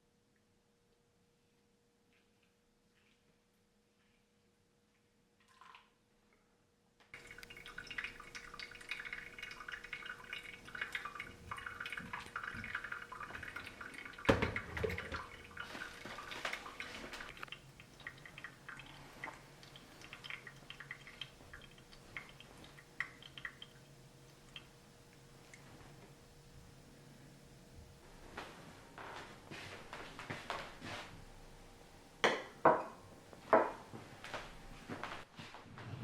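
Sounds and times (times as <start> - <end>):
water splashing and dripping: 7.2 - 24.8.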